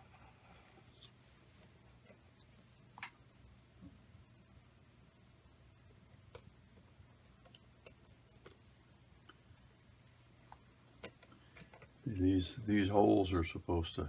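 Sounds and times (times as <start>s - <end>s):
faint low hum: 0.0s - 14.0s
small metal parts clicking: 7.4s - 8.6s, 11.0s - 12.6s.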